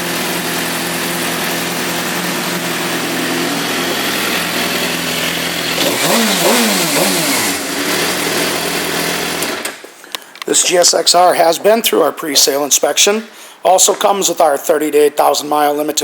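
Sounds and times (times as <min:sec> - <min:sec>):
motorcycle engine idling and revving: 0:00.0 - 0:09.7.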